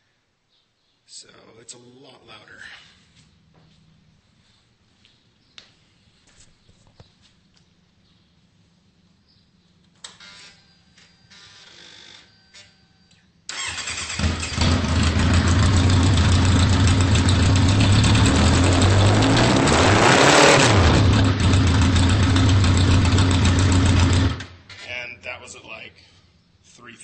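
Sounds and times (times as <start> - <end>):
motorcycle engine idling: 14.3 - 19.0, 21.1 - 24.4.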